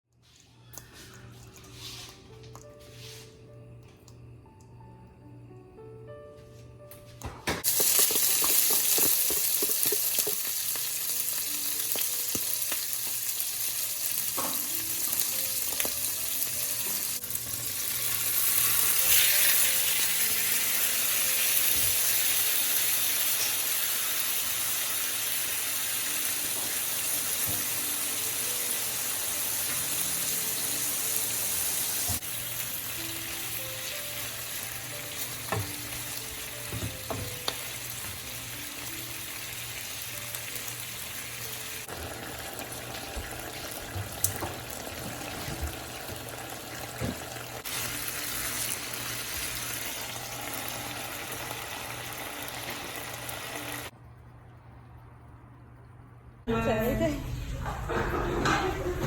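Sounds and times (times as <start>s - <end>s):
food sizzling in hot oil: 7.6s - 53.9s.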